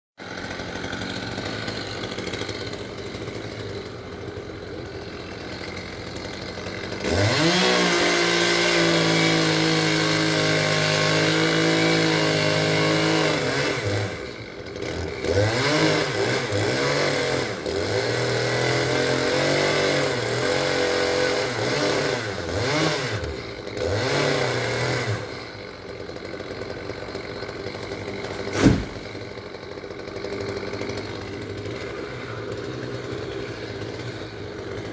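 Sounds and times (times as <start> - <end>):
chainsaw engine revving: 0.2 - 34.9
sharp knock: 28.5 - 29.0.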